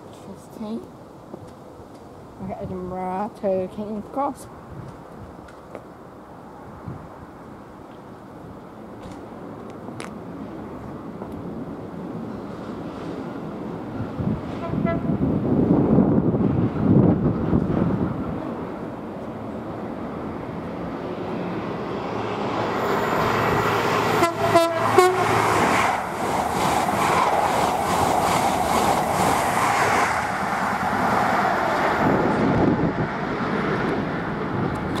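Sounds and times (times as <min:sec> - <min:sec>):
train rushing past: 0:10.4 - 0:35.0
train horn blasts: 0:14.6 - 0:15.2, 0:24.2 - 0:25.4
wheels clattering over rails: 0:24.8 - 0:32.4.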